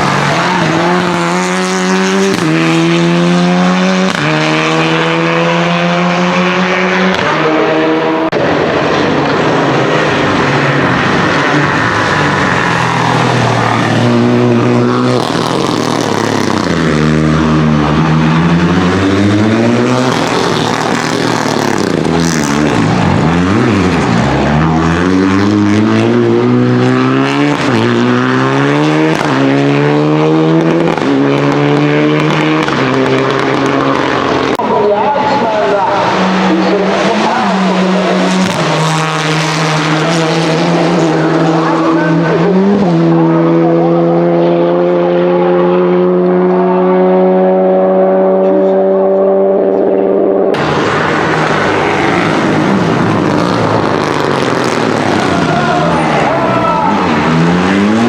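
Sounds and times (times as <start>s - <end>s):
car engine driven hard: 0.0s - 58.0s.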